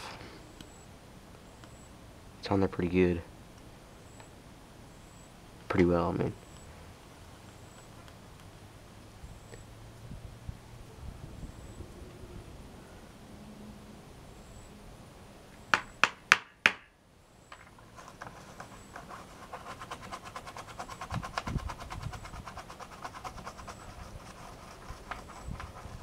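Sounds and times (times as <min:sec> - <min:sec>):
scrubbing on plastic case: 0:17.8 - 0:26.0.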